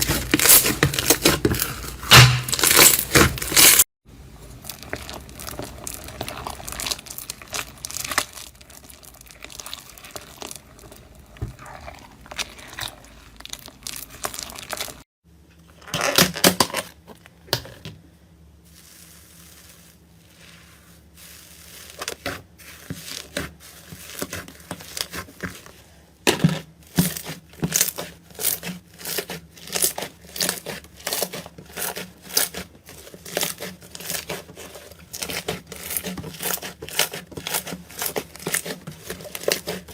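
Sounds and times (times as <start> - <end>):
crunchy material crackling: 0.0 - 15.1, 18.6 - 26.0.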